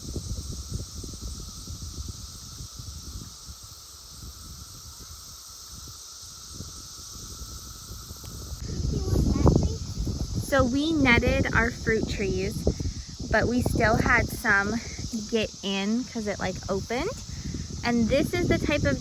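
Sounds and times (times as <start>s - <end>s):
cicadas droning buzz: 0.0s - 19.0s
low rumbling on microphone: 7.9s - 19.0s.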